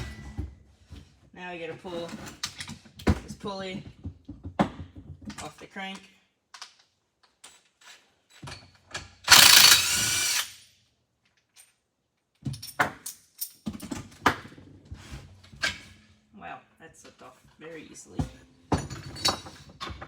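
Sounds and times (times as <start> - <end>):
tools and metal parts clinking: 6.6 - 10.6, 12.5 - 14.2, 18.7 - 20.0
power drill running: 9.3 - 10.6.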